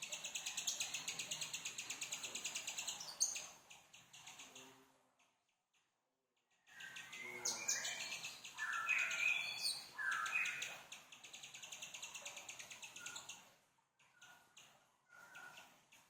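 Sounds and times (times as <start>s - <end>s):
songbird singing trills: 6.8s - 10.7s.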